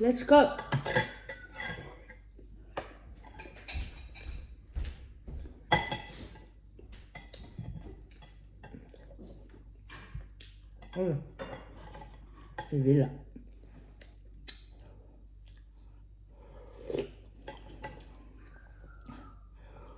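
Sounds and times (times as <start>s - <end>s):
cutlery clinking on plates: 0.6s - 2.2s, 5.7s - 6.4s.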